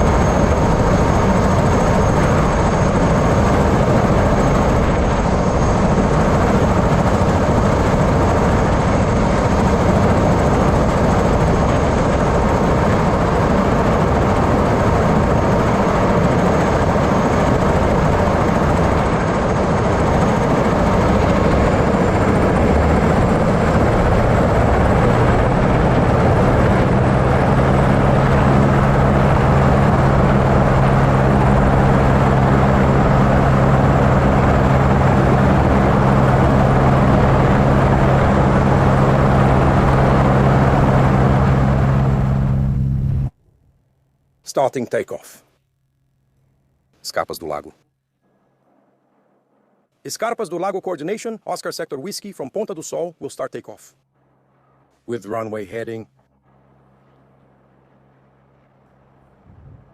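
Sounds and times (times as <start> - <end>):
helicopter engine and rotor: 0.0 - 43.3, 54.2 - 59.9
high whine: 0.0 - 44.4, 45.5 - 50.0, 54.0 - 59.9
deep hum: 20.2 - 44.4, 54.0 - 55.1, 56.0 - 59.9.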